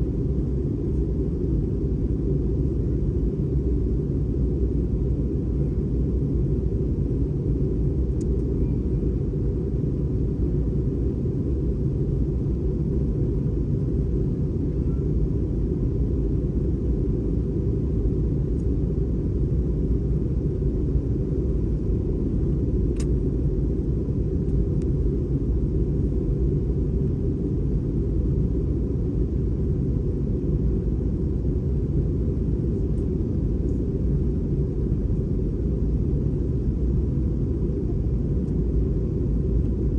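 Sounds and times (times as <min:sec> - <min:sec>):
aircraft cabin engine rumble: 0:00.0 - 0:39.9
faint steady tone: 0:00.0 - 0:39.9
light click: 0:08.2 - 0:08.5, 0:22.9 - 0:23.2.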